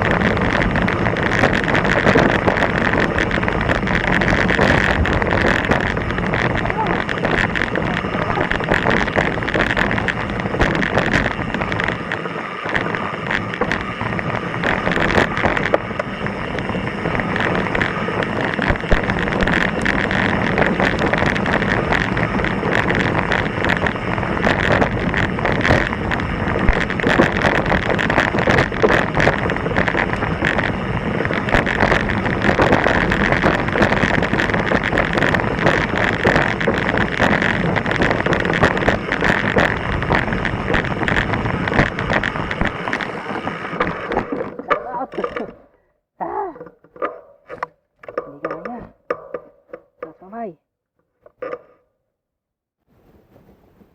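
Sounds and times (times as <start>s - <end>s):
wind on microphone: 0.0s - 45.6s
bike rattling over rocks: 0.0s - 45.8s.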